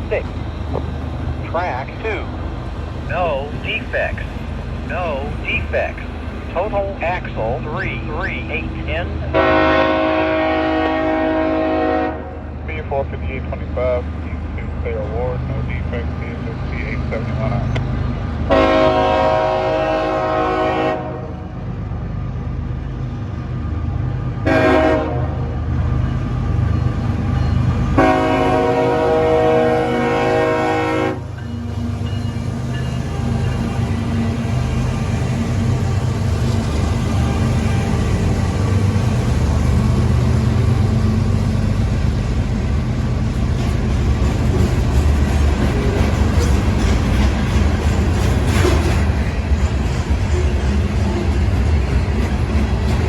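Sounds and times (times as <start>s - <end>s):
diesel locomotive rumble: 0.0s - 53.0s
freight train passing: 0.0s - 53.0s
locomotive air horn chord: 9.3s - 12.4s, 18.5s - 21.4s, 24.4s - 25.4s, 28.0s - 31.3s.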